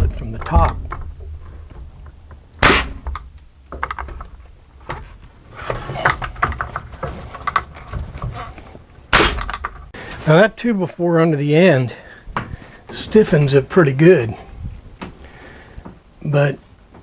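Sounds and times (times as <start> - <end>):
clicks and knocks handling wood: 0.0 - 10.2
nail gun firing: 2.6 - 3.3, 9.1 - 9.6.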